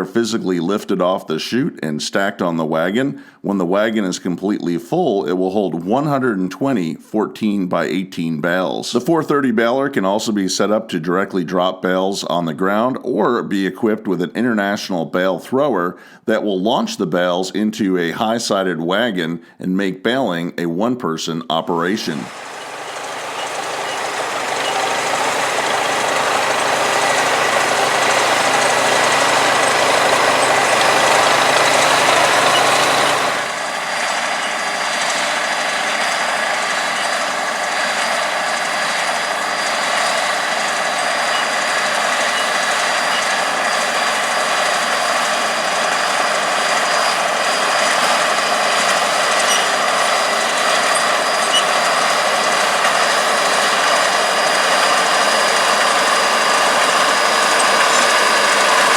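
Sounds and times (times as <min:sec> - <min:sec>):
tractor diesel engine under load: 0:00.0 - 0:06.8, 0:22.0 - 0:58.9
baler working through straw: 0:22.3 - 0:58.9.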